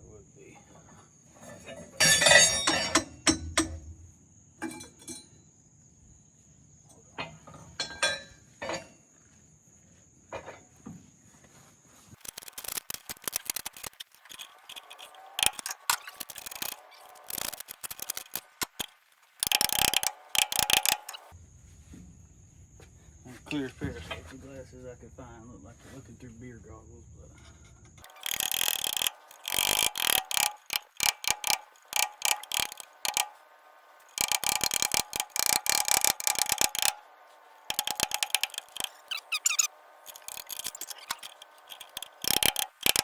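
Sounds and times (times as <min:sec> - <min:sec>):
metal parts clinking: 0:01.4 - 0:03.9, 0:12.2 - 0:21.3, 0:28.0 - 0:43.0
rapid metallic clicking: 0:12.2 - 0:21.4, 0:28.0 - 0:43.0.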